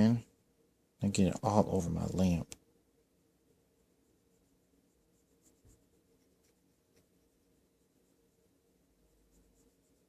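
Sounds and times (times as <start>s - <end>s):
soft rubbing: 3.0s - 10.0s.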